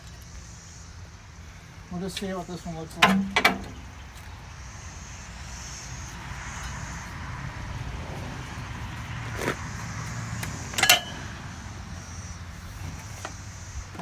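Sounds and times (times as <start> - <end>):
sharp metallic clinks: 10.7 - 11.5.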